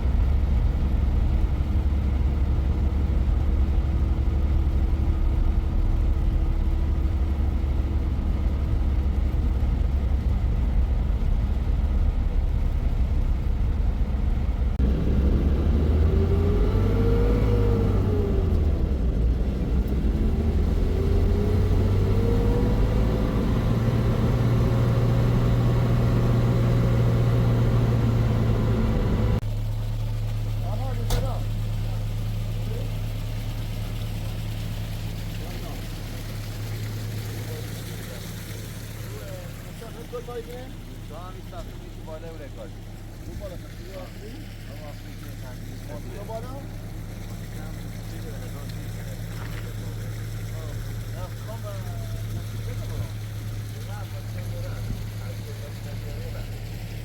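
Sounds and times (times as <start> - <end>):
vehicle engine revving: 1.4 - 29.5.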